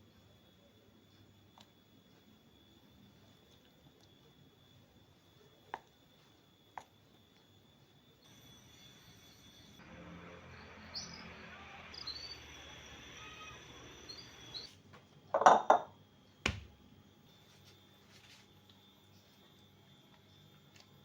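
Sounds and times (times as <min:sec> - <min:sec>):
kitchenware clattering: 0:15.4 - 0:15.9.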